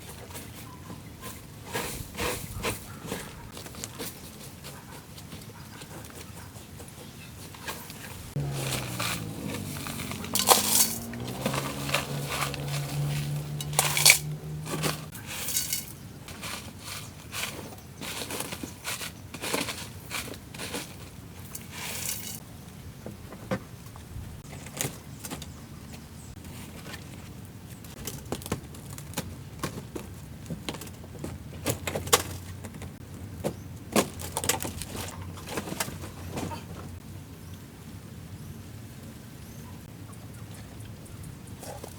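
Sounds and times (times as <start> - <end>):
brushing or scraping: 0.0 - 22.4
tools clicking and knocking: 10.3 - 15.9.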